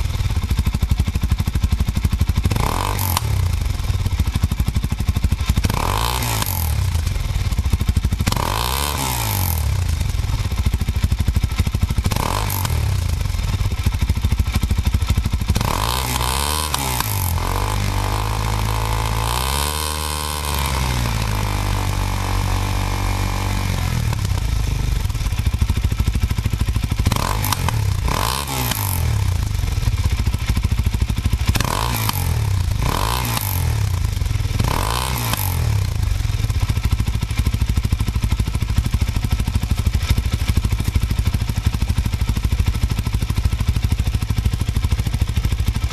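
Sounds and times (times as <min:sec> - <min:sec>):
motorcycle engine idling: 0:00.0 - 0:45.9
motorcycle throttle blips: 0:09.7 - 0:38.0.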